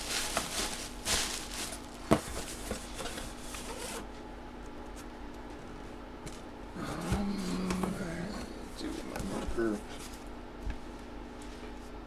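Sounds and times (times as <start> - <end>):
items rustling on a table: 0.0 - 4.1.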